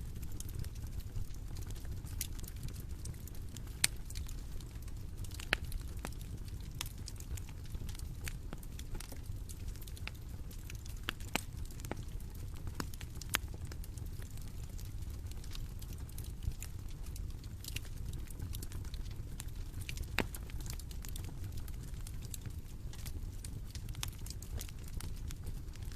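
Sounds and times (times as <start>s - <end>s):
burning wood popping and snapping: 0.0s - 25.9s
low rumble of flame: 0.0s - 25.9s.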